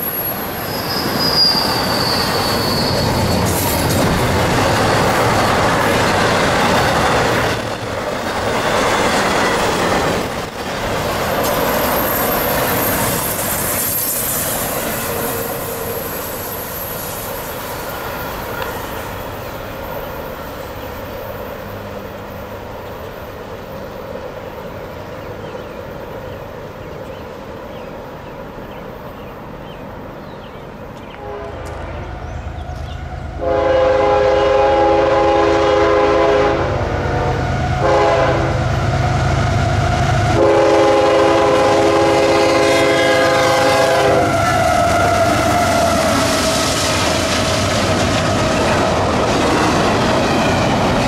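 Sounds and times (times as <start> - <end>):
thin high squeal: 0.0 - 3.8, 11.4 - 17.6
freight train rolling on rails: 0.0 - 51.0.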